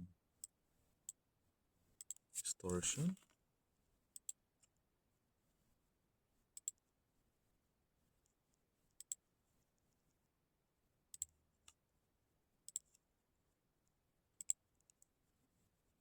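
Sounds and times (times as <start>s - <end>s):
computer mouse clicks: 2.0s - 3.2s, 4.2s - 4.4s, 6.6s - 6.8s, 9.0s - 9.2s, 11.1s - 11.8s, 12.7s - 13.0s, 14.4s - 15.1s.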